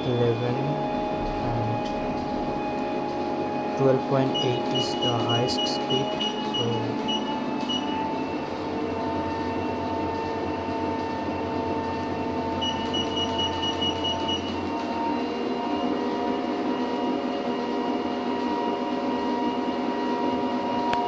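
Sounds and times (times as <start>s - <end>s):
treadmill motor whining: 0.0s - 21.0s
treadmill belt rumbling: 0.6s - 14.8s.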